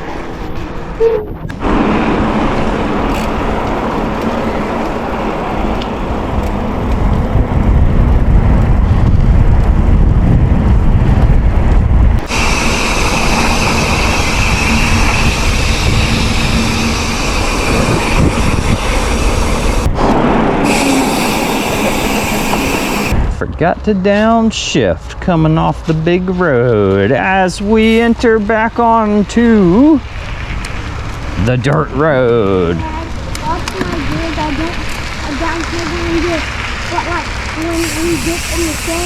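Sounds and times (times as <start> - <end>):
bicycle tyres on road: 0.0 - 23.4, 24.1 - 39.0
wind buffeting microphone: 0.0 - 23.5, 28.9 - 39.0
high-pitched hiss: 12.3 - 19.8, 20.6 - 23.2, 37.6 - 39.0.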